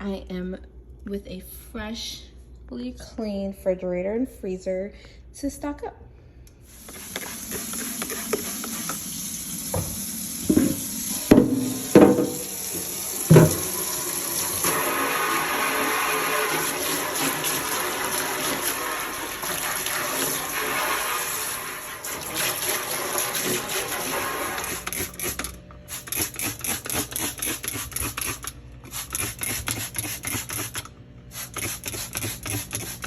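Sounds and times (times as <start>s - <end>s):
tap water running into sink: 6.7s - 25.3s
items knocking: 9.7s - 13.8s.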